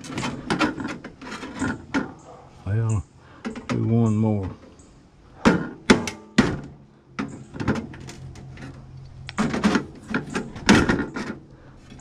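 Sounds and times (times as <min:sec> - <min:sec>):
metal knocks and clatters: 0:00.0 - 0:02.4, 0:05.4 - 0:12.0.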